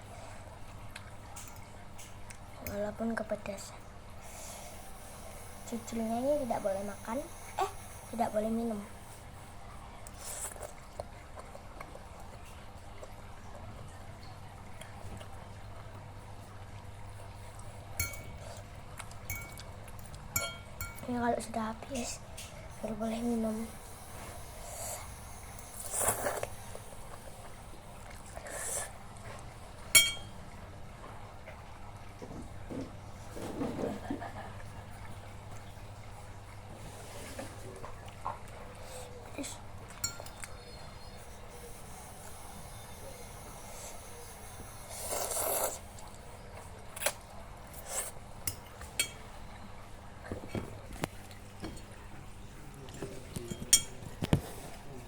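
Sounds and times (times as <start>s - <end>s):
utensil clinking against bowl: 18.0s - 21.2s, 29.9s - 30.4s, 40.0s - 40.7s, 48.4s - 49.3s, 53.0s - 54.5s
slurping noodles: 23.2s - 29.5s, 41.0s - 46.2s
cutlery scraping a bowl: 53.4s - 54.7s.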